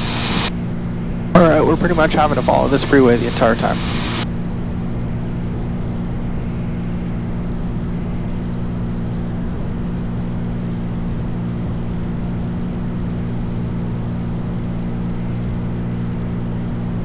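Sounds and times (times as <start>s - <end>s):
plane engine and propeller droning: 0.0s - 17.0s.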